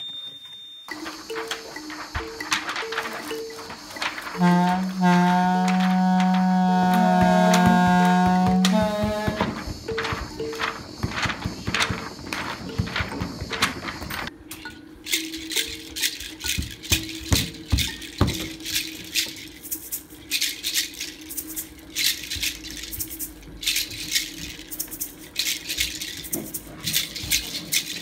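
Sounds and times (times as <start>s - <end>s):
shaker rattling: 0.9s - 28.0s.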